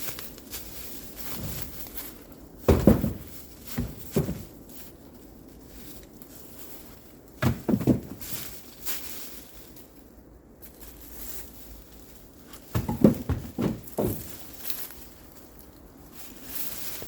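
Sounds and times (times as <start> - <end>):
firewood thudding and knocking: 1.2 - 2.0, 2.6 - 4.7, 7.4 - 8.6, 12.5 - 14.7.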